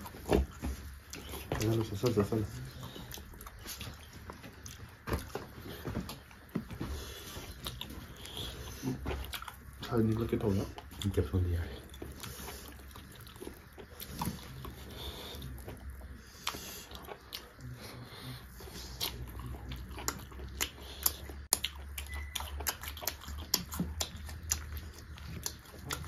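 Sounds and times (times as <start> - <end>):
wet chewing: 0.0 - 26.0
sharp mouth clicks and smacks: 18.6 - 26.0.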